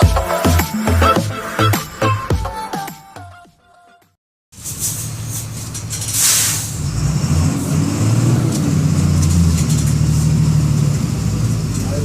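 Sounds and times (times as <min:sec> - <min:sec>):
diesel bus engine accelerating: 0:04.8 - 0:12.0
air hiss: 0:06.1 - 0:06.8.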